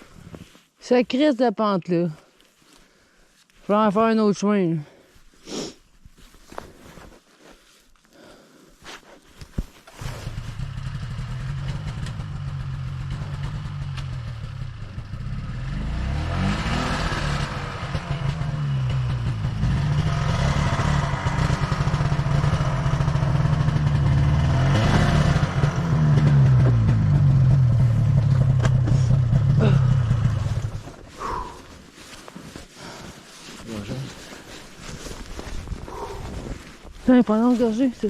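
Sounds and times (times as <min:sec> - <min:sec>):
snowmobile engine revving: 0:10.0 - 0:30.8.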